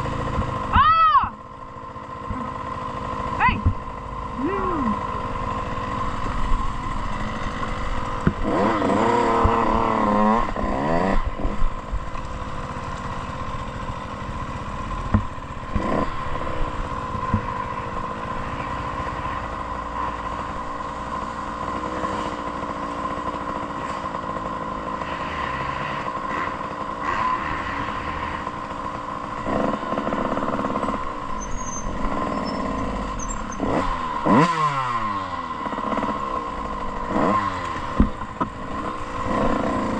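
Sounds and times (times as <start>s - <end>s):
motocross bike engine revving: 2.1s - 39.9s.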